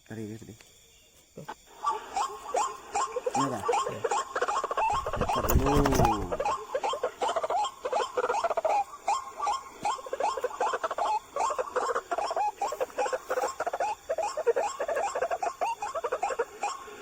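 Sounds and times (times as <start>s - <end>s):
bird calling harsh notes: 1.8s - 16.9s.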